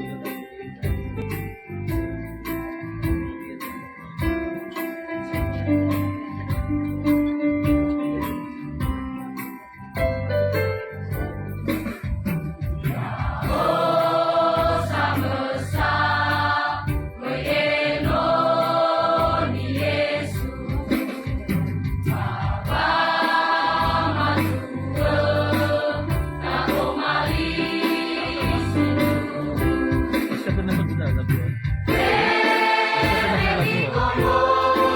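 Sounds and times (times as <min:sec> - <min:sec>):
choir singing: 0:12.9 - 0:30.0, 0:31.9 - 0:34.9
low bass accompaniment: 0:30.5 - 0:32.3.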